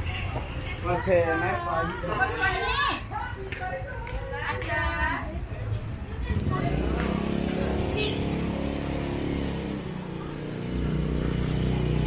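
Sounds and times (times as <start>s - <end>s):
street traffic engines: 0.0s - 12.0s
deeper engine: 6.2s - 12.0s.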